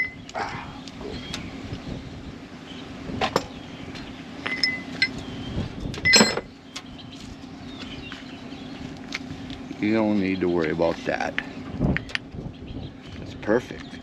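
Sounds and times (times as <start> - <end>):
metal tools clinking: 4.4 - 5.2, 6.0 - 6.5.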